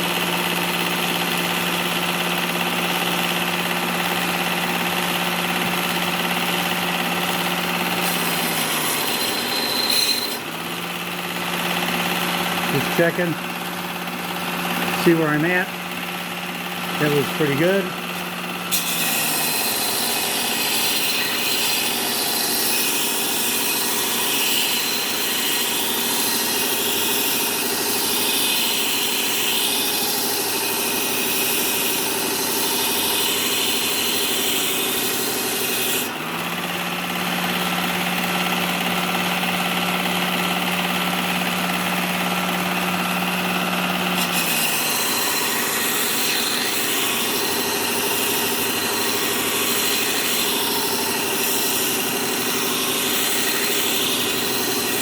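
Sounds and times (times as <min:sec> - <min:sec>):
motor hum: 0:00.0 - 0:20.6
belt grinding steel: 0:07.3 - 0:15.8, 0:41.3 - 0:55.0.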